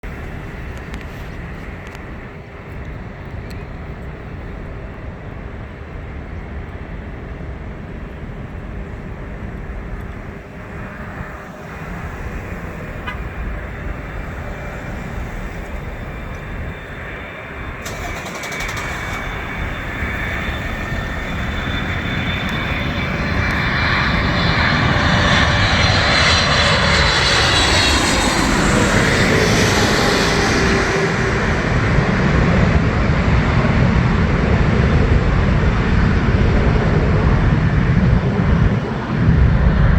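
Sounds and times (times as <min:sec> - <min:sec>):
jet engines rushing and whining: 0:00.0 - 0:39.9.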